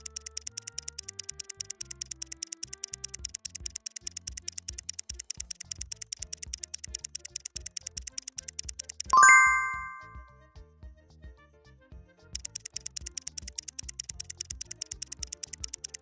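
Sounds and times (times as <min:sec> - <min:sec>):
rapid ticking timer: 0:00.0 - 0:10.2, 0:12.4 - 0:16.0
music track: 0:00.0 - 0:10.3
loud bright chime: 0:09.2 - 0:10.2.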